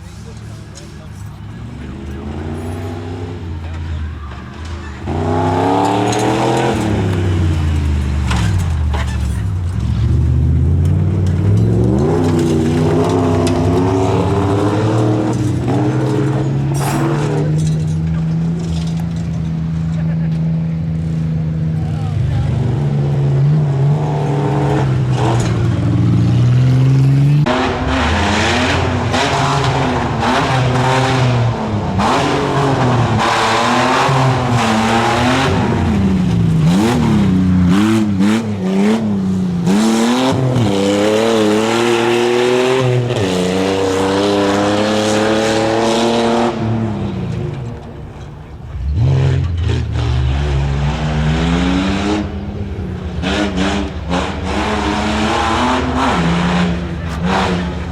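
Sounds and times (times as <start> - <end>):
truck engine revving: 0.0 - 57.9.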